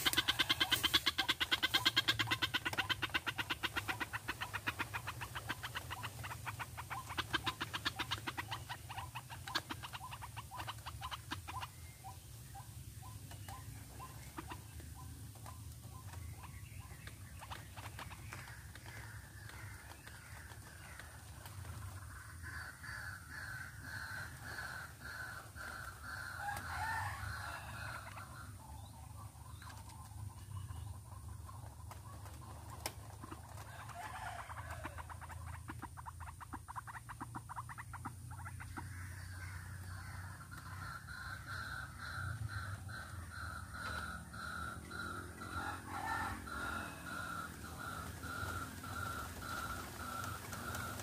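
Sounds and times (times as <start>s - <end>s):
rapid bird trill: 0.0s - 20.6s
waterhen calling: 0.0s - 51.0s.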